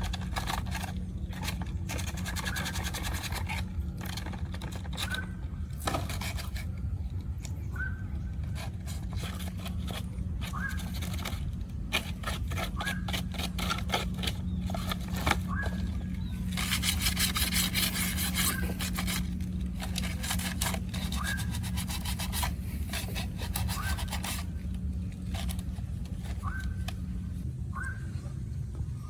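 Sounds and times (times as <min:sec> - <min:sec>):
low hum: 0:00.0 - 0:29.0
hand scraping on hard surface: 0:08.4 - 0:27.0.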